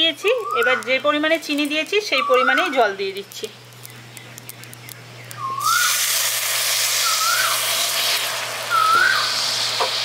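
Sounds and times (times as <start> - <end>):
bird whistled call: 5.3 - 6.1, 6.9 - 7.7, 8.7 - 9.4
water hissing in hot pan: 5.6 - 10.0.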